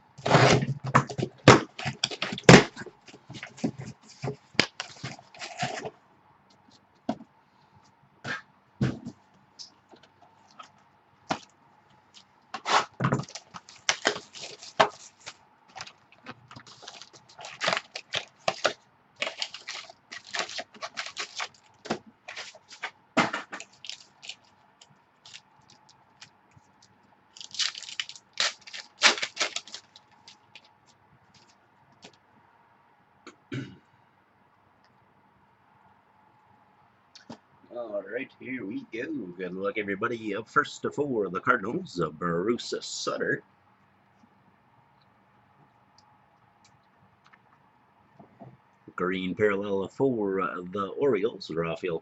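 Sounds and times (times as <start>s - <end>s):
packaging crackling and tearing: 0.2s - 2.8s, 12.6s - 24.5s, 25.2s - 26.3s, 27.3s - 30.7s
packaging clicks: 12.6s - 22.9s, 23.5s - 24.5s, 27.4s - 30.7s.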